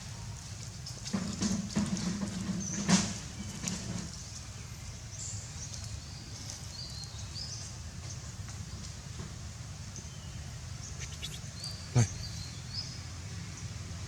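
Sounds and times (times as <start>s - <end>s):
high-pitched animal chirps: 11.0s - 12.1s.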